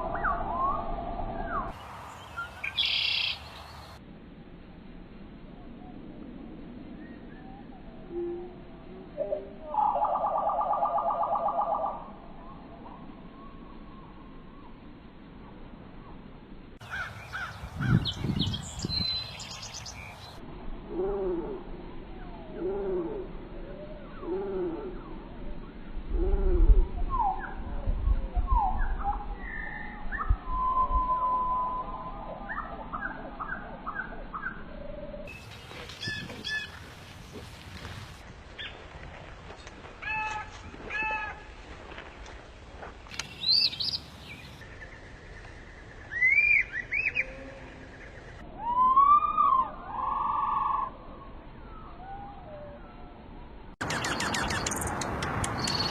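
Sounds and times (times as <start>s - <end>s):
deep rumble: 0.0s - 1.8s, 17.5s - 43.1s
bird whistled calls: 0.0s - 3.4s, 28.4s - 34.6s, 35.3s - 36.8s, 43.3s - 44.0s, 46.0s - 47.4s, 53.8s - 55.9s
birds calling: 0.0s - 4.0s, 16.8s - 20.4s, 35.3s - 42.4s, 43.0s - 48.4s, 53.8s - 55.9s
steady background hiss: 1.7s - 28.0s, 30.6s - 48.9s
bird cooing: 35.5s - 37.9s, 46.2s - 48.2s.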